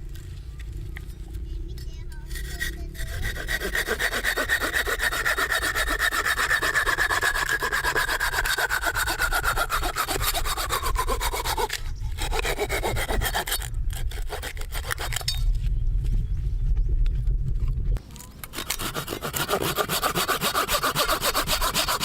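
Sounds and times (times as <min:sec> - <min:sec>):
hand saw cutting wood: 0:02.3 - 0:15.4, 0:18.5 - 0:22.0.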